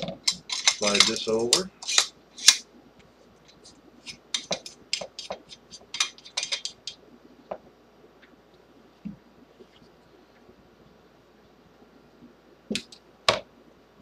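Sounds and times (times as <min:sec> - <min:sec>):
metal parts clicking: 0:00.2 - 0:02.6, 0:04.4 - 0:07.0.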